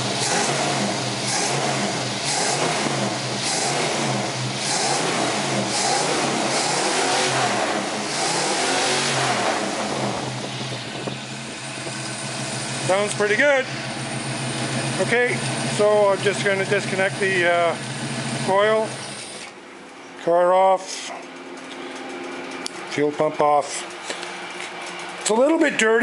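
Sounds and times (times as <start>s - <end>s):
engine revving: 0.0s - 19.6s.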